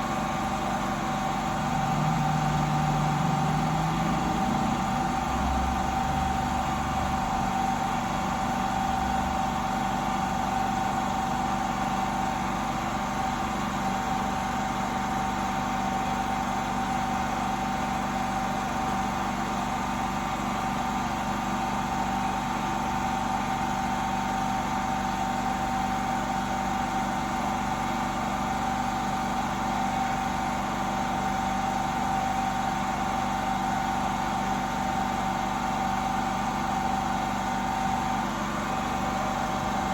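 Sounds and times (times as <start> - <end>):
machine hum with high tone: 0.0 - 19.3.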